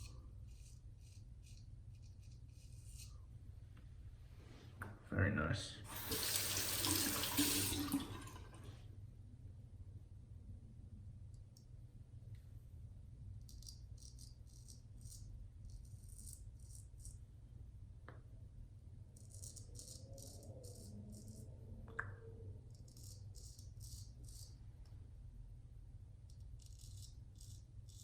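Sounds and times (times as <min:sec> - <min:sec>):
razor scraping stubble: 0:00.0 - 0:03.3, 0:13.4 - 0:17.2, 0:19.1 - 0:21.5, 0:22.6 - 0:24.6, 0:26.3 - 0:28.0.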